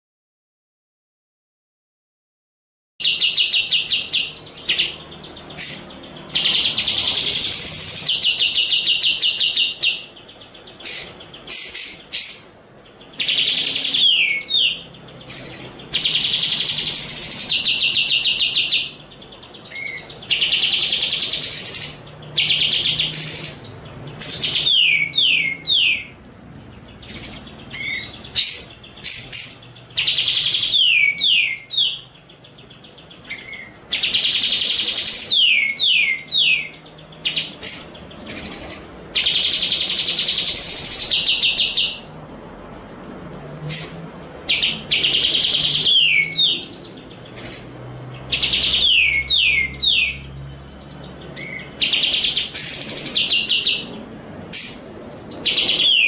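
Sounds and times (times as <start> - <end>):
songbird trills and whistles: 3.0 - 26.2, 27.0 - 42.1, 43.6 - 56.0.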